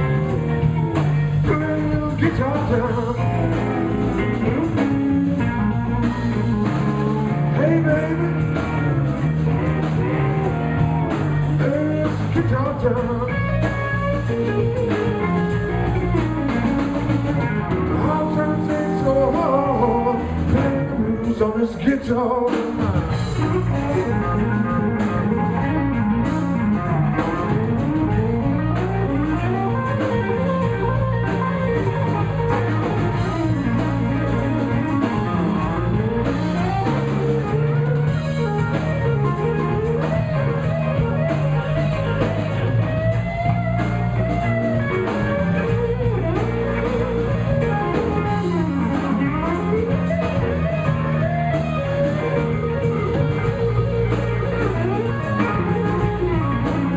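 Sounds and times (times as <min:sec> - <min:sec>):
electric guitar solo: 0:00.0 - 0:21.4, 0:22.8 - 0:56.9
bass guitar: 0:00.0 - 0:56.9
drum kit steady beat: 0:00.0 - 0:56.9.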